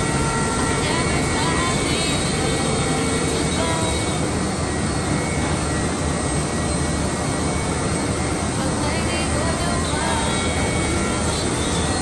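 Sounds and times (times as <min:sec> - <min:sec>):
cnc router running: 0:00.0 - 0:12.0.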